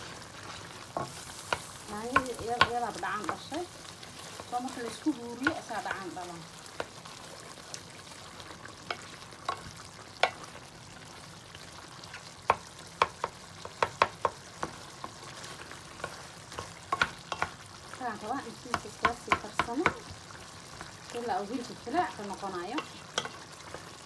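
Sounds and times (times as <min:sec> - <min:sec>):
meat sizzling in a pan: 0:00.0 - 0:24.0
spatula clacking against pan: 0:16.0 - 0:17.6, 0:22.8 - 0:23.4.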